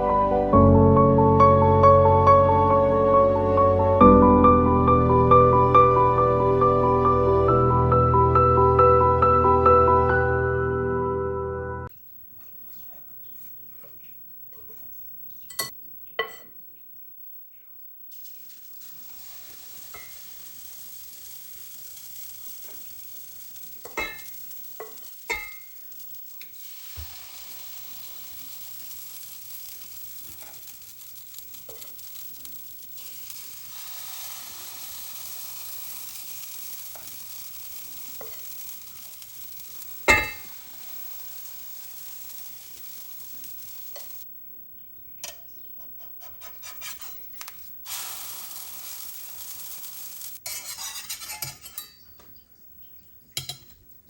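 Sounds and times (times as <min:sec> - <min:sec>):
food sizzling in a frying pan: 0:12.4 - 0:16.6, 0:18.1 - 0:44.4, 0:46.7 - 0:52.3, 0:53.3 - 0:53.9
utensil clinking against pan: 0:50.5 - 0:52.2.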